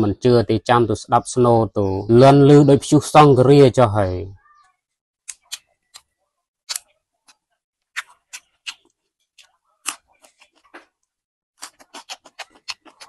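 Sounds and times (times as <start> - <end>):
crunching raw vegetables: 6.7 - 13.0.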